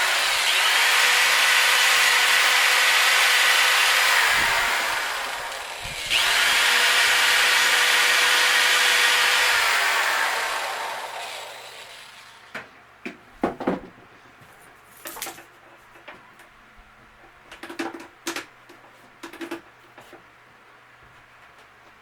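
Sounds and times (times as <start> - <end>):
power tool winding down: 0.0 - 12.5
knocks and clicks of wood and tools: 12.5 - 14.1, 15.0 - 20.3.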